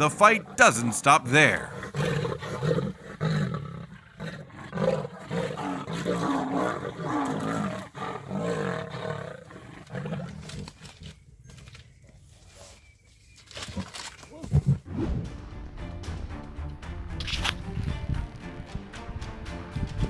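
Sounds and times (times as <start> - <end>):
big cats growling and roaring: 1.7 - 10.8.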